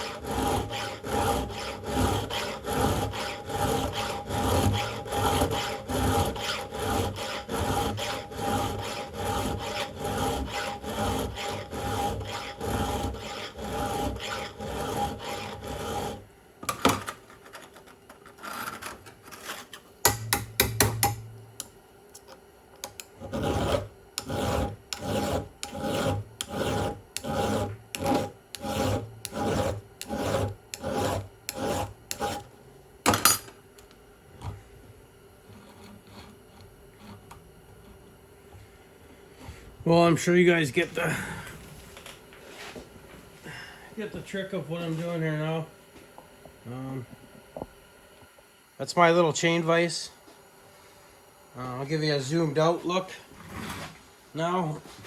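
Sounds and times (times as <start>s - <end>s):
file rasping on chainsaw chain: 0.0s - 16.2s, 23.2s - 32.4s.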